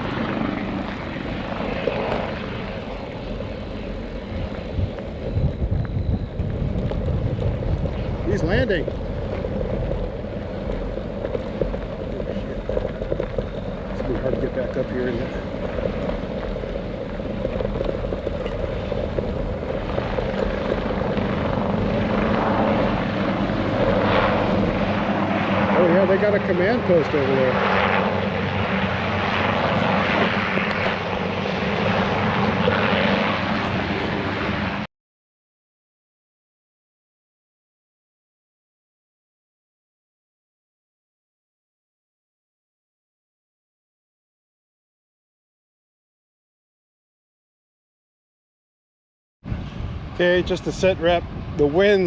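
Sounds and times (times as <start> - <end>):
wind buffeting microphone: 0.0 - 34.8, 49.5 - 52.0
helicopter running overhead: 0.0 - 34.9, 49.4 - 52.0.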